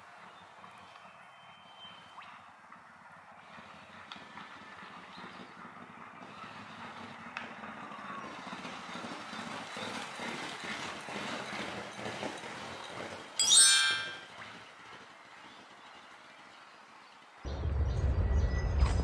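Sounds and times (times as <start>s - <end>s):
horses galloping on turf: 3.4s - 13.4s.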